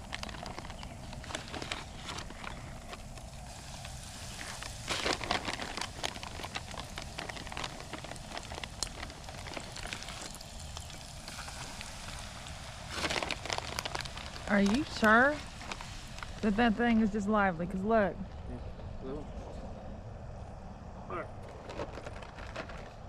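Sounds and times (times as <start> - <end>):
fish frying with sizzle and pops: 0.0 - 17.5.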